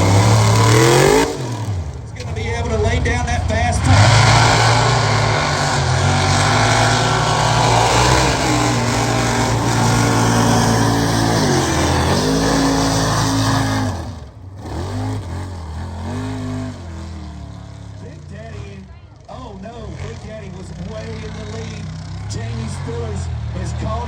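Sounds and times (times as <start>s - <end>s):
truck engine revving: 0.0s - 24.0s.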